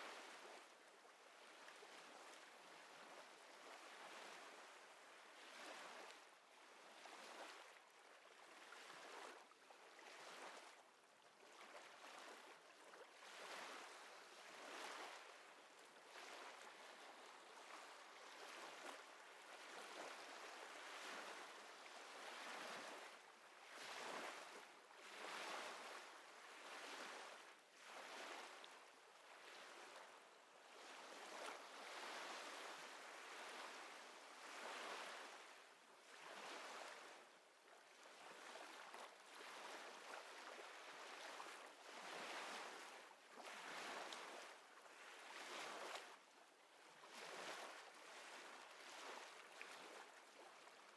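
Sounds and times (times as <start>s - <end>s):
small waves lapping: 11.4s - 50.9s.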